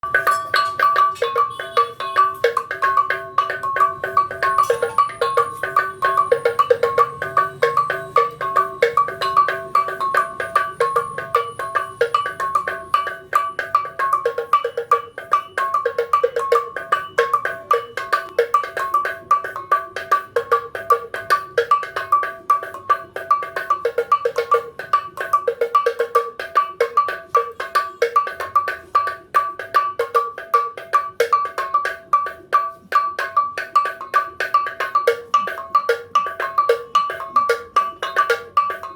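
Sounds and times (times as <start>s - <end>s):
bells struck in fast rhythm: 0.0s - 38.9s.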